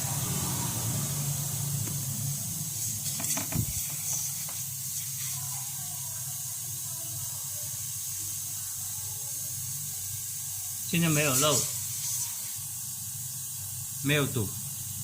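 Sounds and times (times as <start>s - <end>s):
refrigerator compressor humming: 0.0s - 5.0s
steady hiss: 0.0s - 15.0s.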